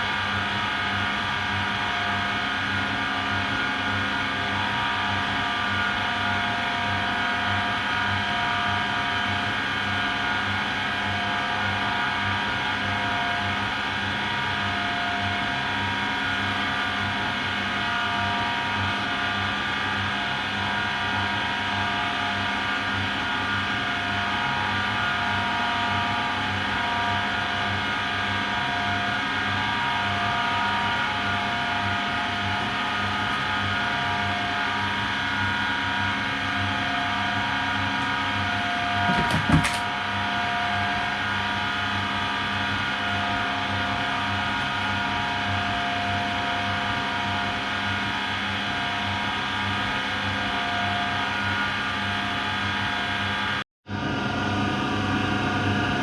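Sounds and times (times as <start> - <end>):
washing machine motor whine: 0.0 - 56.0
brief knock: 39.0 - 39.8.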